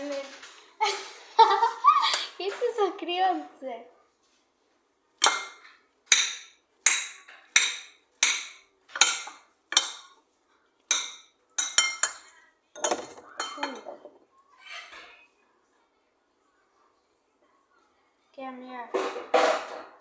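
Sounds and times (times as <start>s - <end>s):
kitchenware clinking: 5.2s - 15.3s, 18.9s - 20.0s.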